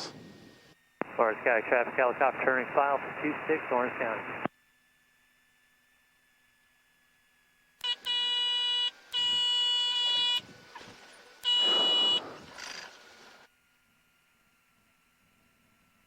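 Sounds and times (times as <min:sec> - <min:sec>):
stall warning horn: 0:07.8 - 0:13.4.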